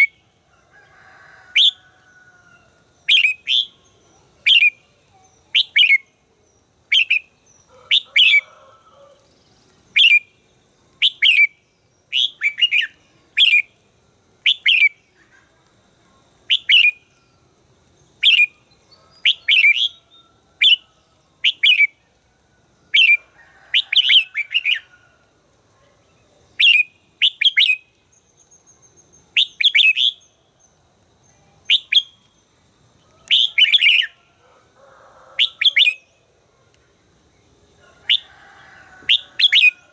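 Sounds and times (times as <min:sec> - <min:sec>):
bird chirping: 0:16.5 - 0:22.0.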